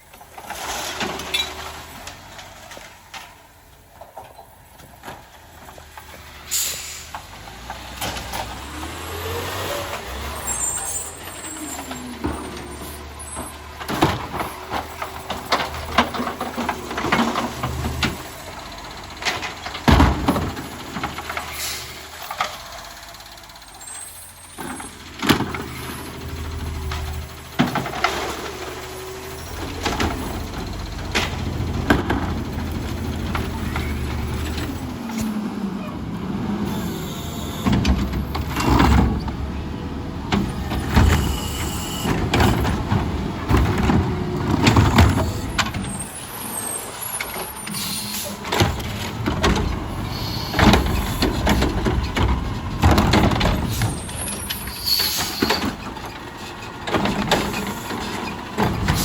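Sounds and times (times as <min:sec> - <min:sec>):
clanks and bangs from bins: 0:00.0 - 0:59.0
diesel engine running: 0:00.0 - 0:59.0
air brakes hissing: 0:06.4 - 0:07.2, 0:21.5 - 0:22.3, 0:36.7 - 0:37.8, 0:41.1 - 0:42.2, 0:45.3 - 0:48.6, 0:49.9 - 0:51.3, 0:53.6 - 0:55.8.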